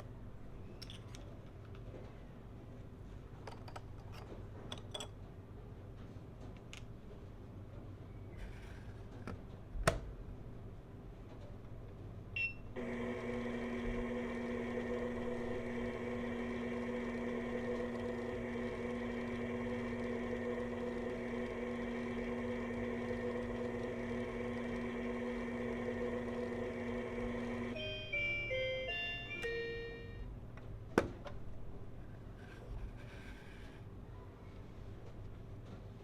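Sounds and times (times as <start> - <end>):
electronic running hum: 12.4 - 30.4.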